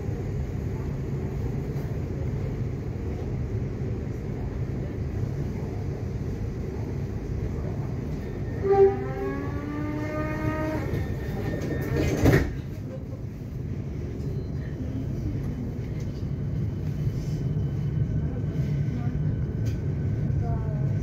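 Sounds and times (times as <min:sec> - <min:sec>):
train wheels rumbling: 0:00.1 - 0:21.0.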